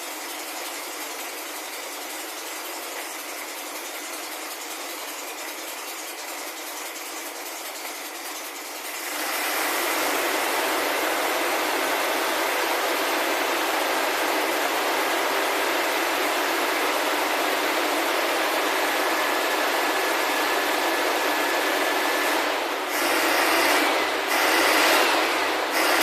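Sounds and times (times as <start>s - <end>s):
car engine running: 6.4s - 26.0s.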